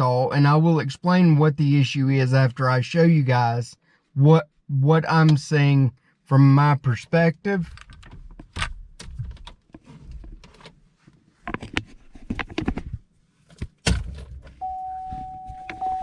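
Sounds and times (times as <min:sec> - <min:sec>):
car electronic chime tone: 0:14.6 - 0:16.0.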